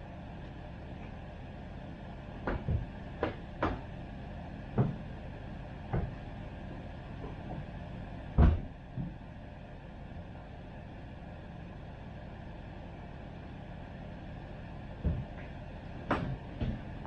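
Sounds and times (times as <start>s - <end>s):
steady low hum: 0.0s - 17.0s
knocks and thuds: 2.4s - 3.8s, 4.8s - 5.0s, 5.9s - 6.2s, 8.4s - 9.2s, 15.0s - 15.4s.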